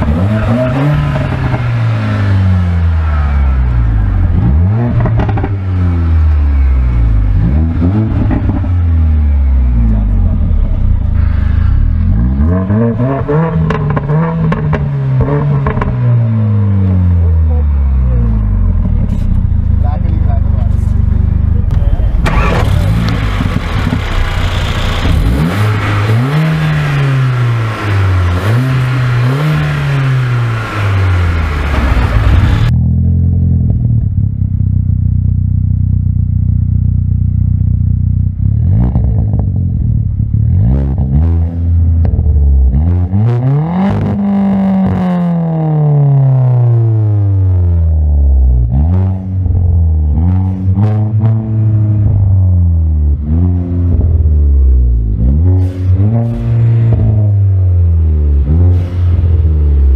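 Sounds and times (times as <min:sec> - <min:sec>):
car engine idling: 0:00.0 - 0:12.5, 0:13.3 - 0:38.6
car engine revving: 0:00.0 - 0:59.9.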